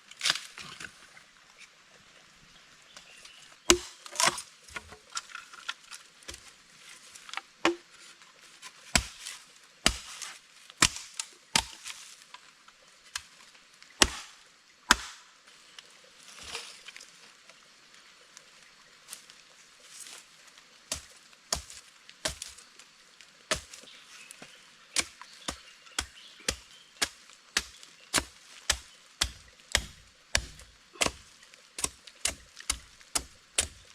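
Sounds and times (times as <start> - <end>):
firewood being chopped: 3.7 - 4.4, 7.6 - 7.9, 8.9 - 10.2, 10.8 - 11.9, 14.0 - 15.2, 20.9 - 22.6, 23.5 - 23.9, 24.9 - 33.9.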